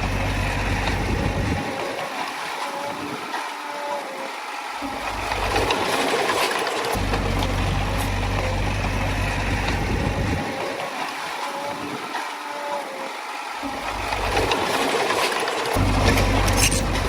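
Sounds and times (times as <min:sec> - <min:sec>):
deep rumble: 0:00.0 - 0:01.6, 0:07.0 - 0:10.5, 0:15.8 - 0:17.0
bulldozer clattering: 0:00.0 - 0:04.0, 0:04.7 - 0:12.9, 0:13.6 - 0:17.0.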